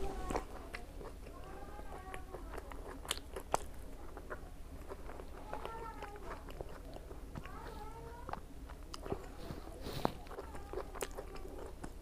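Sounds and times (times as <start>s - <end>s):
chewing with wet mouth clicks: 0.2s - 12.0s.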